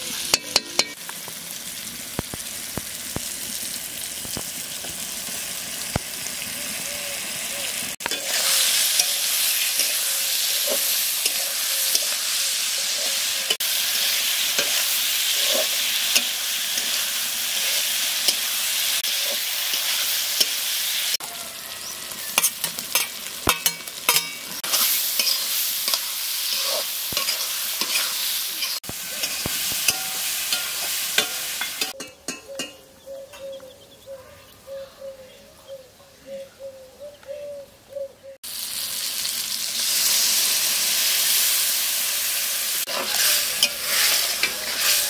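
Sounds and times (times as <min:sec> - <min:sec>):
food sizzling in a pan: 0:00.0 - 0:32.0, 0:38.4 - 0:45.0
spatula clinking on steel plates: 0:00.3 - 0:01.0, 0:08.0 - 0:12.2, 0:15.4 - 0:18.6, 0:22.3 - 0:33.4, 0:43.0 - 0:45.0
metal spatula scraping a pan: 0:08.0 - 0:20.7, 0:22.3 - 0:32.7, 0:42.9 - 0:45.0.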